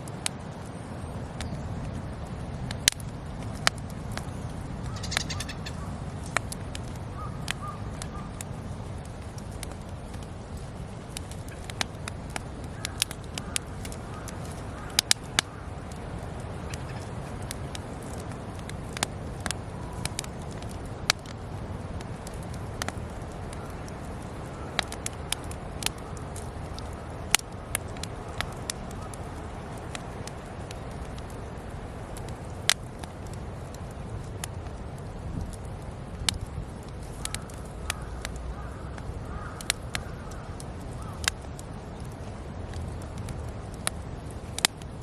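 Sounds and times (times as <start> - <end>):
campfire crackling and popping: 0.0 - 45.0
faint short bird calls: 4.9 - 5.9.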